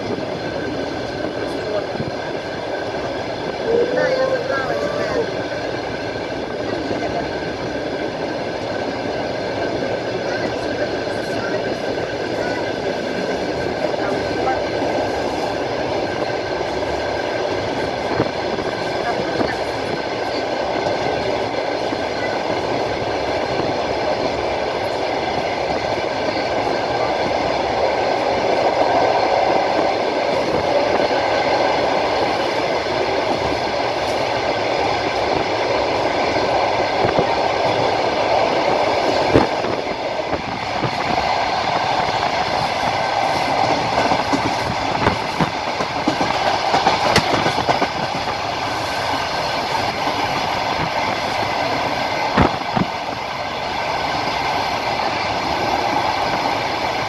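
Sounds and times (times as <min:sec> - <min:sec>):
whining tones: 0:00.0 - 0:21.0
train wheels rumbling on rails: 0:00.0 - 0:57.0
wheels knocking over track: 0:43.3 - 0:48.8.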